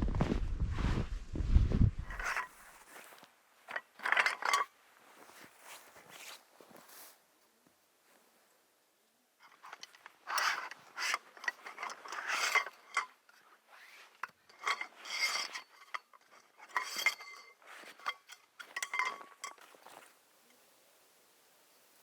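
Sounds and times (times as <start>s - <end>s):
metal objects clinking: 3.7s - 4.7s, 9.5s - 13.3s, 14.2s - 20.1s.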